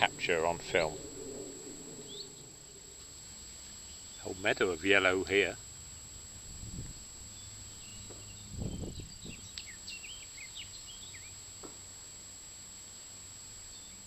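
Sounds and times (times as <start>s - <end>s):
birds chirping and whistling: 0.0s - 3.1s, 7.3s - 11.4s
low wind rumble on microphone: 0.0s - 4.2s, 4.9s - 9.8s.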